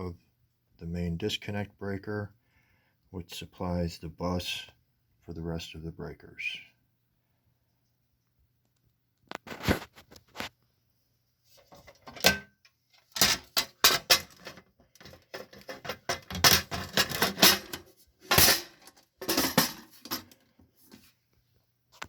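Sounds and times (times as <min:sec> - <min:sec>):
metal panel clicking and rattling: 0:13.1 - 0:20.4.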